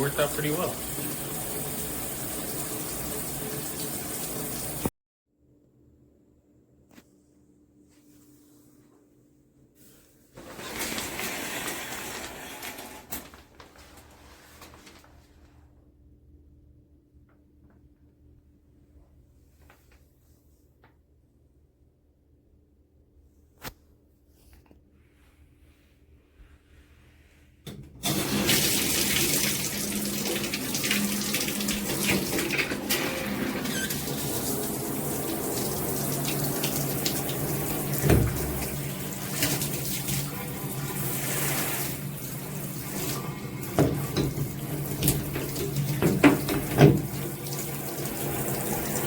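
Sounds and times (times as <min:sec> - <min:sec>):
shower water spraying: 0:00.0 - 0:04.9, 0:28.0 - 0:49.0.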